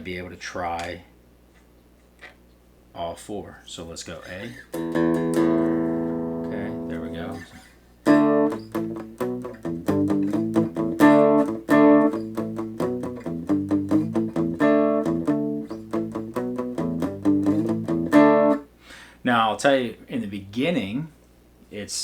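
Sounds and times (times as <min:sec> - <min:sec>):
electric guitar strumming chords: 0:04.7 - 0:18.7.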